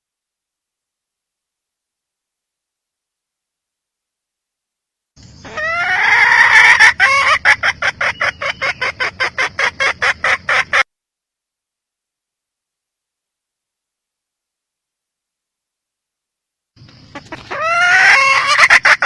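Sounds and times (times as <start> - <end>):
hen cackling and clucking: 5.2 - 10.9, 16.8 - 19.0.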